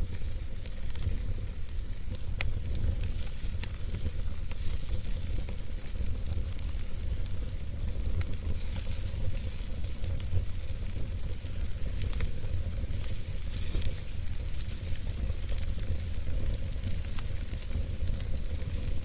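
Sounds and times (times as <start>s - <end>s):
flames rumbling and hissing: 0.0s - 19.0s
logs crackling and popping: 0.0s - 19.0s.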